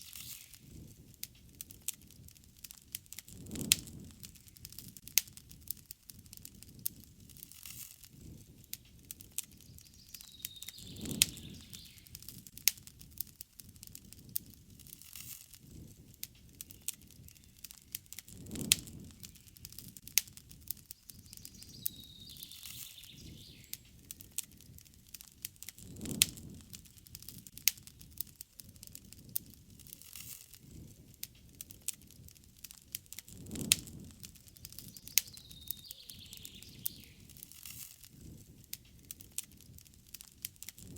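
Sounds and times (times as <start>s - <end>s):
campfire crackling and popping: 0.0s - 40.9s
low flame rumble: 0.0s - 40.9s
faint birds chirping: 9.5s - 12.3s, 16.5s - 18.2s, 20.8s - 24.4s, 34.6s - 37.5s.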